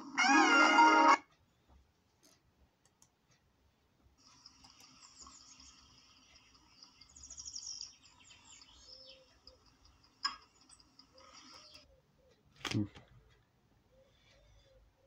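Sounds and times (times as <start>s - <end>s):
small birds twittering: 4.2s - 15.0s.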